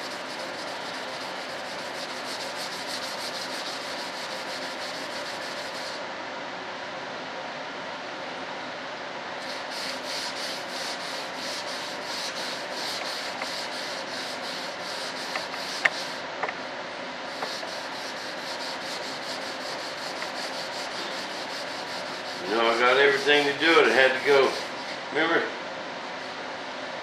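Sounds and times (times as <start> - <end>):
sandpaper rubbing: 0.0 - 6.0, 9.4 - 16.2, 17.3 - 23.5, 24.3 - 24.9.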